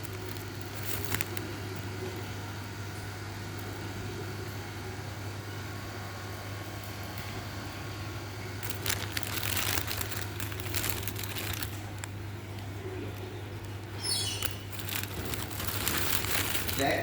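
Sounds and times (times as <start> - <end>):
crinkling and rustling: 0.0 - 2.0, 8.6 - 17.0
steady low hum: 0.0 - 17.0.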